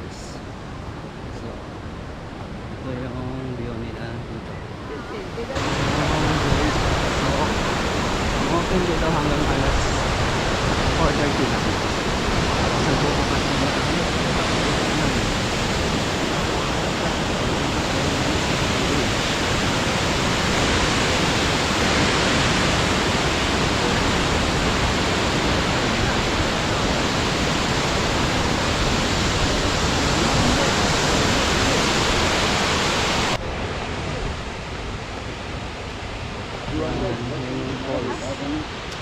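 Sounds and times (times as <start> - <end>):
waterfall rushing: 4.8 - 39.0.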